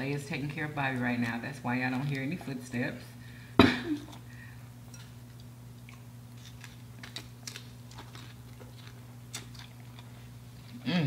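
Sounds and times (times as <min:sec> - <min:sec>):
steady low hum: 0:00.0 - 0:11.0
people chewing crunchy food: 0:03.9 - 0:11.0.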